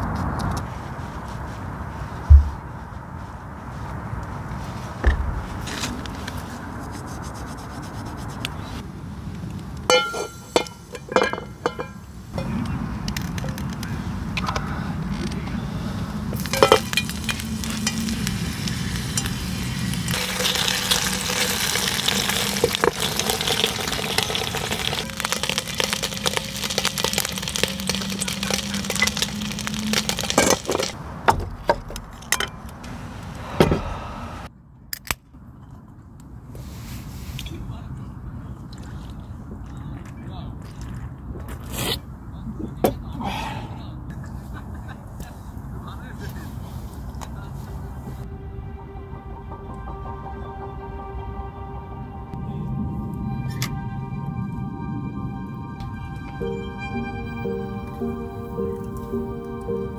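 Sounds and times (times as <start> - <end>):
knocks: 5.0 - 5.4
food sizzling in hot oil: 16.4 - 31.0.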